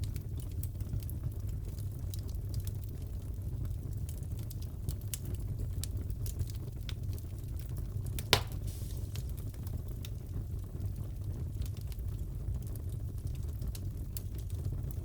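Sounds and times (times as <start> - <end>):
fire low rumble: 0.0 - 15.0
wood fire crackling: 0.0 - 15.0
loud fire pop: 8.2 - 9.6
brief hiss: 8.3 - 9.4.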